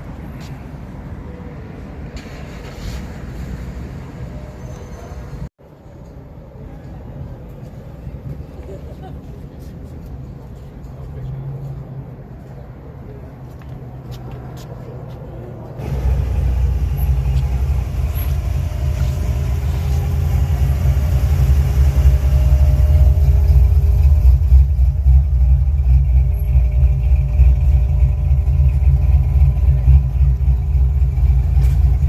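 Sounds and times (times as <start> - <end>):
car engine rumbling: 6.5 - 32.0.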